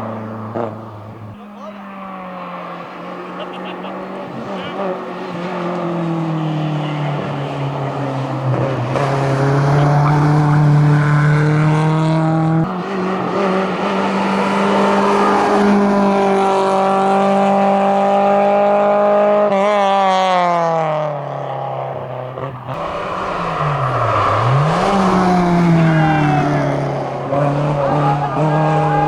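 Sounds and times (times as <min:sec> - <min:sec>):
car engine pulling hard: 0:00.0 - 0:29.0.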